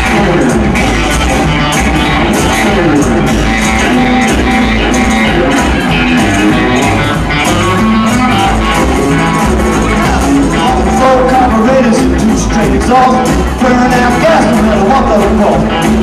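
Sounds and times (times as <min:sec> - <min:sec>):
rockabilly band playing: 0:00.0 - 0:16.0.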